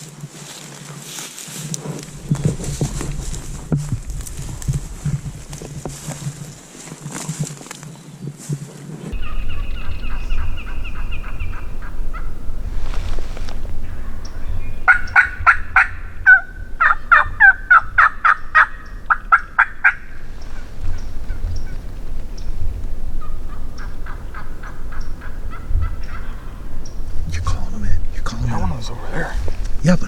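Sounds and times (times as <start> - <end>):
low wind rumble: 1.5 - 30.0
turkey yelping: 9.2 - 12.5, 14.9 - 20.0.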